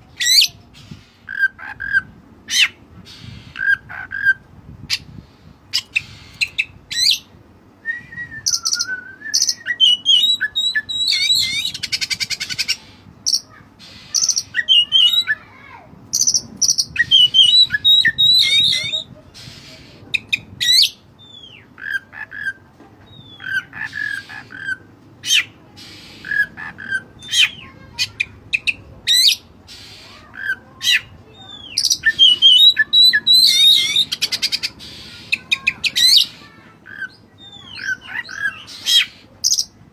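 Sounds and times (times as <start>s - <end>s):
bird singing whistled notes: 7.8s - 12.0s, 16.3s - 19.1s.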